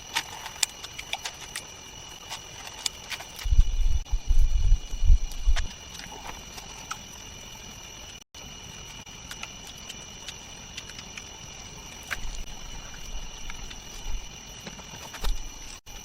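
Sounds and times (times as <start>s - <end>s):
high insect drone: 0.0s - 16.0s
dull low thumps: 3.4s - 5.7s.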